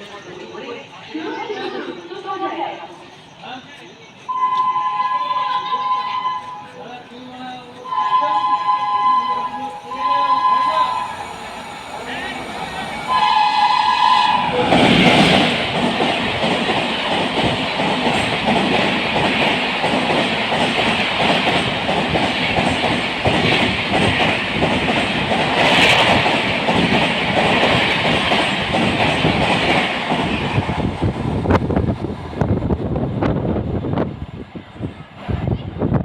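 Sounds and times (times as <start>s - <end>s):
train horn blast: 4.3s - 6.9s, 7.8s - 11.4s, 13.1s - 15.0s
train wheels clickety-clack: 14.2s - 36.0s.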